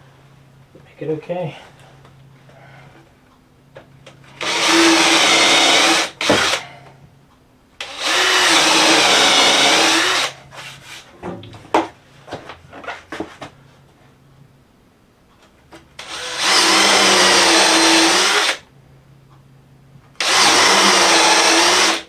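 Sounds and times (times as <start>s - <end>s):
power drill drilling into wood: 4.4s - 6.6s, 7.8s - 10.4s, 16.0s - 18.6s, 20.2s - 22.0s.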